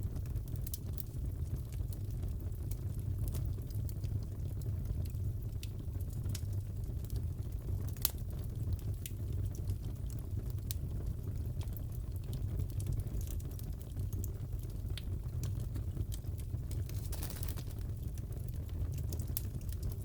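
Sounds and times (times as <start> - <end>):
fire crackling and popping: 0.0 - 20.0
low sound of burning: 0.0 - 20.0.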